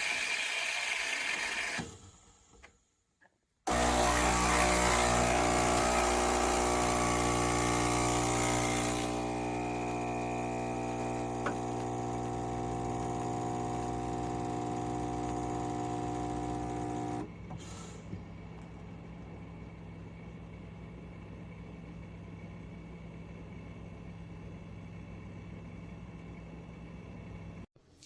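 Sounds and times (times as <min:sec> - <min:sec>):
espresso machine pump buzzing: 0:03.7 - 0:17.3.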